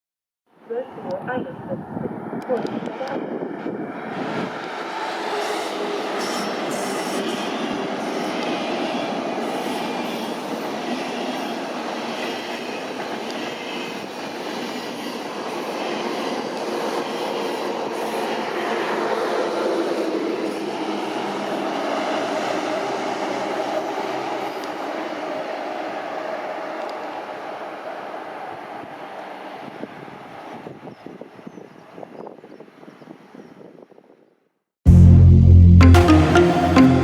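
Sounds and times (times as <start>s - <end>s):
train wheels on rails: 2.4s - 30.6s.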